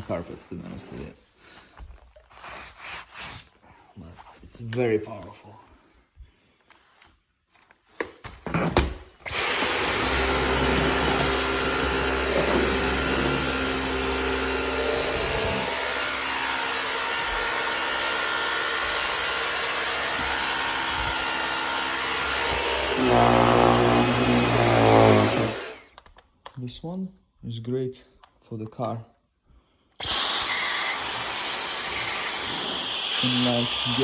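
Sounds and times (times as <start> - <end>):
cordless vacuum whining: 9.2 - 26.0, 30.0 - 34.0.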